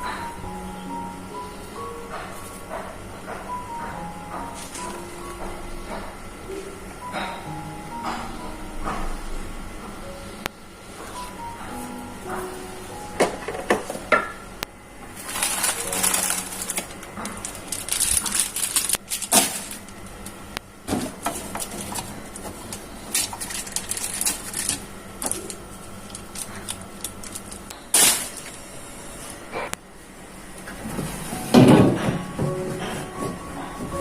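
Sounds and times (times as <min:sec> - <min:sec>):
dishes knocking and clattering: 0:13.2 - 0:14.4.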